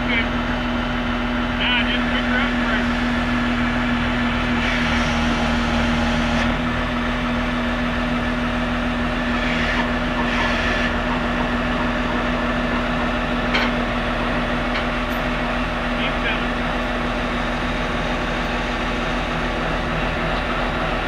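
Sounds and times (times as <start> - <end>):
loader diesel engine humming: 0.0 - 21.0.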